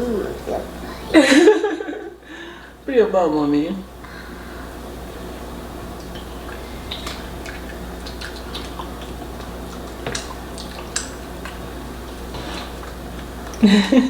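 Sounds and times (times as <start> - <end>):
steady low hum: 0.0 - 14.0
clicks and taps of eating: 5.9 - 14.0.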